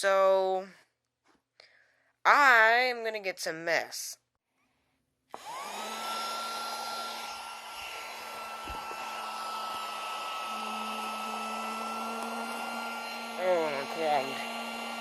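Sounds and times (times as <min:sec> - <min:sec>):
handheld vacuum motor whine: 0:05.3 - 0:15.0.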